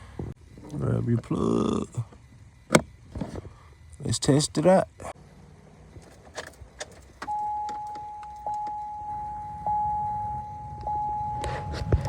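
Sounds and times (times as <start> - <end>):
dashboard warning chime: 7.2 - 11.8.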